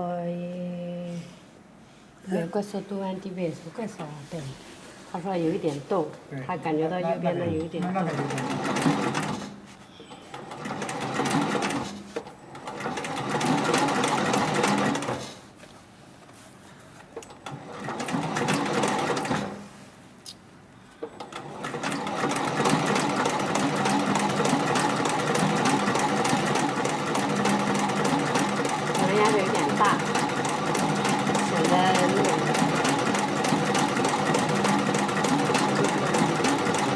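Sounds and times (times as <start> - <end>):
sewing machine stitching: 7.8 - 9.6, 10.3 - 15.3, 17.5 - 19.6, 21.2 - 36.9.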